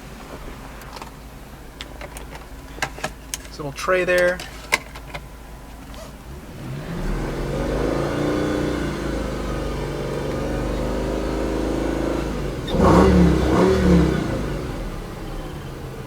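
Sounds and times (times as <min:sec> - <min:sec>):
car engine starting and idling: 0:00.0 - 0:16.0
engine revving: 0:06.3 - 0:16.0.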